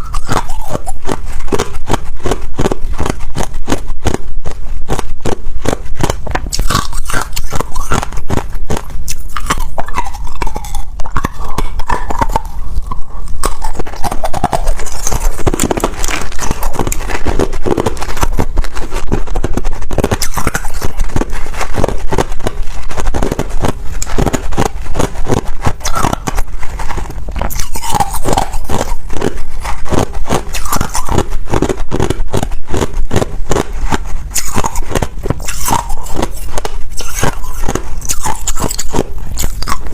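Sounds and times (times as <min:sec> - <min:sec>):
ice crunching being chewed: 0:00.0 - 0:39.9.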